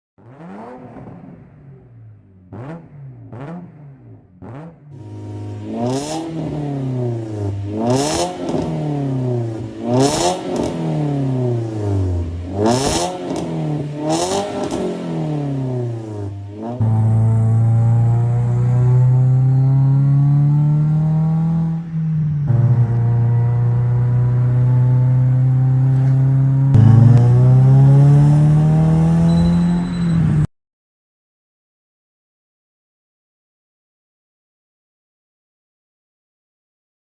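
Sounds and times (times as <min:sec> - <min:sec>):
car engine revving: 0:00.2 - 0:30.5.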